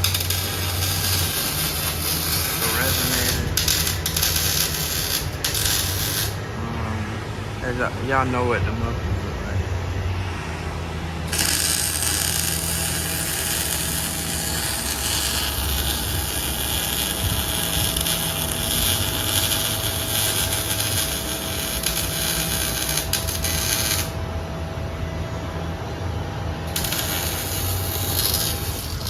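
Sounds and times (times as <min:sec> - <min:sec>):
power tool high hiss: 0:00.0 - 0:06.4, 0:11.3 - 0:24.2, 0:26.7 - 0:29.0.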